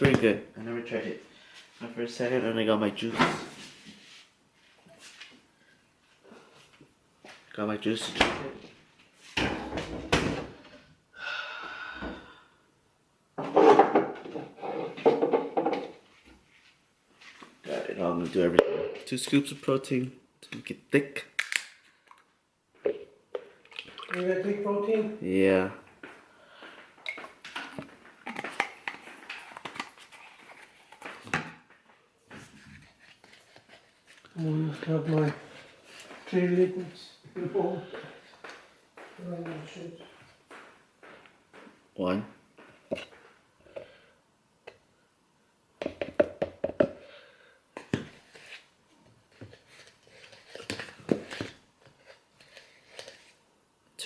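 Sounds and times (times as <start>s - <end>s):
containers and utensils clicking: 23.6s - 24.2s.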